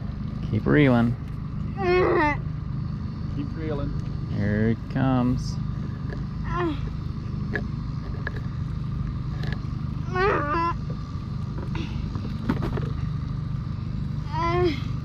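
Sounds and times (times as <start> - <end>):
outboard motor humming: 0.0 - 15.0.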